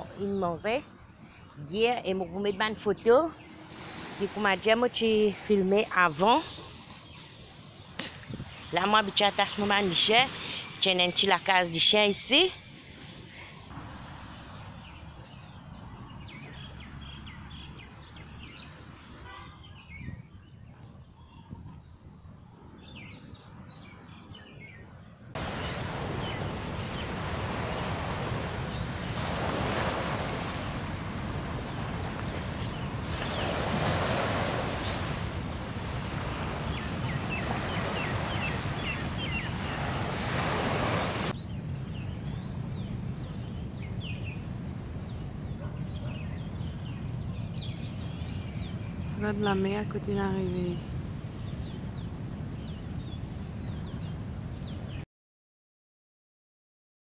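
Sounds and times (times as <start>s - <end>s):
sea surf breaking on shore: 3.4s - 5.0s, 25.4s - 41.4s
bird chirps: 36.6s - 40.0s.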